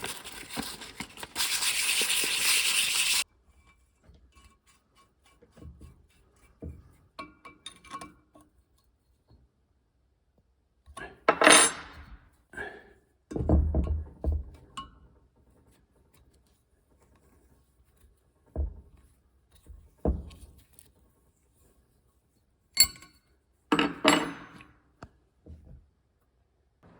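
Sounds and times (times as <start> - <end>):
metal tools clinking: 22.8 - 24.6.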